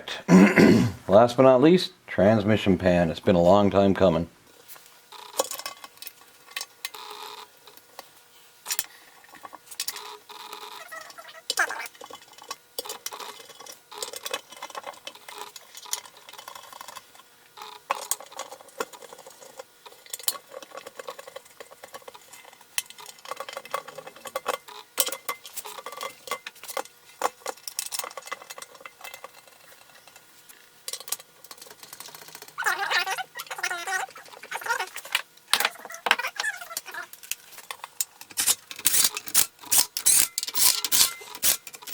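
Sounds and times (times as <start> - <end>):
metal tools and bolts clinking: 38.2 - 41.9.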